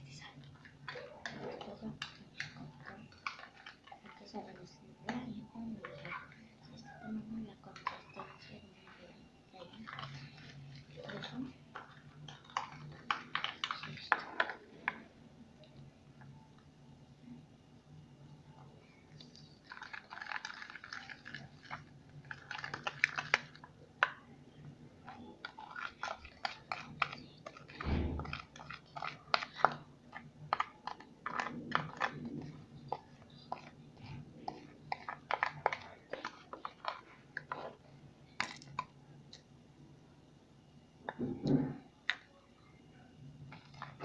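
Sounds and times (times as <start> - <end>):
slime squelching and clicking: 0.4 - 8.6, 9.5 - 15.0, 19.1 - 24.2, 25.0 - 39.5.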